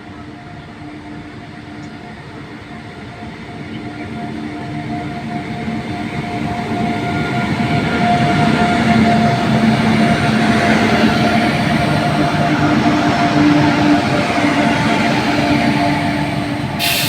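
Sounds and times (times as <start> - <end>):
train rolling noise: 0.0 - 17.0
locomotive hum: 4.6 - 17.0.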